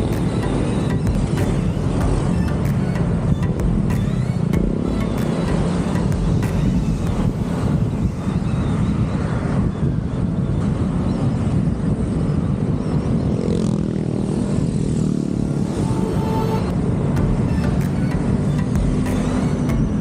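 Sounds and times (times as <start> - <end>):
motorcycle engine running: 0.0 - 9.0, 13.1 - 20.0.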